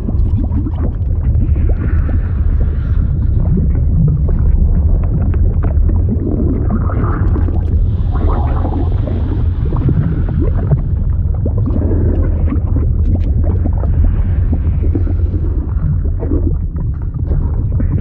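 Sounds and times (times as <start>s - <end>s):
deep rumble: 0.0s - 18.0s
liquid gurgling and bubbling: 0.0s - 18.0s.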